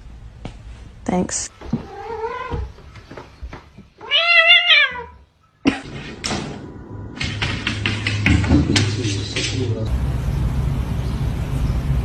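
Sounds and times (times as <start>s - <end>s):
knocks and clatter: 1.5s - 4.1s, 5.6s - 9.9s
cat meowing: 1.7s - 2.8s, 4.0s - 5.3s.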